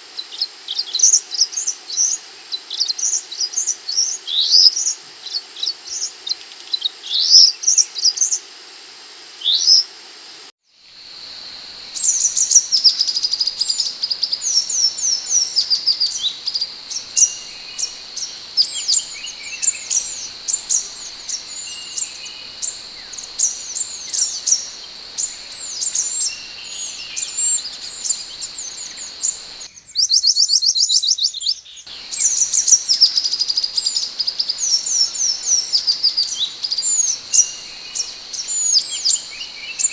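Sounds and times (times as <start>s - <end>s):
steady high hum: 11.0s - 29.7s, 31.9s - 39.9s
bird chirps and whistles: 11.7s - 29.7s, 31.9s - 39.9s.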